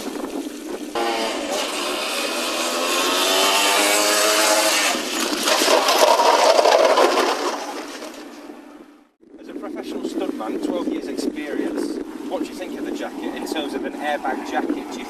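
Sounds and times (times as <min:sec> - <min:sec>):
rough rushing noise: 0:00.0 - 0:15.0.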